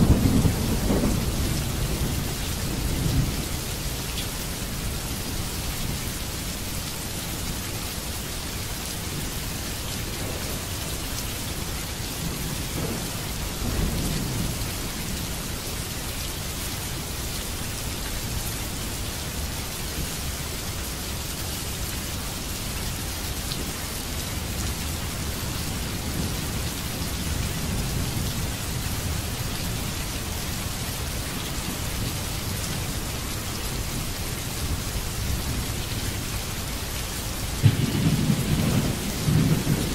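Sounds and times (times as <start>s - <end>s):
low rumble of thunder: 0.0s - 6.0s, 9.8s - 15.8s, 24.2s - 35.8s, 37.4s - 39.9s
steady rain falling: 0.0s - 39.9s.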